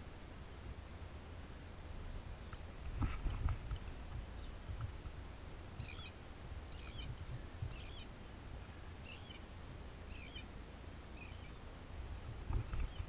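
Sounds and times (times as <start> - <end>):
low steady rumble: 0.0 - 13.0
bird chirping: 5.8 - 8.2, 9.0 - 9.4, 10.1 - 10.5, 11.1 - 11.6.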